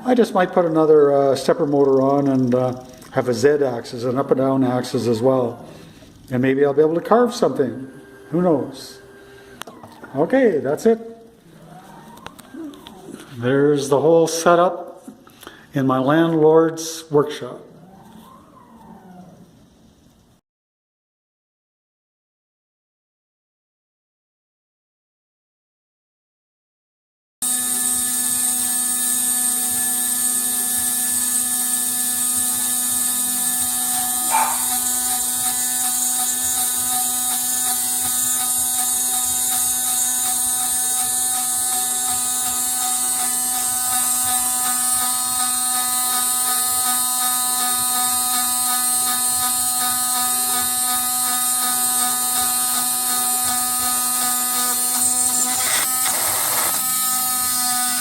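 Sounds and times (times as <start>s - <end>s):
electric motors whining: 0.0s - 13.6s, 27.4s - 58.0s.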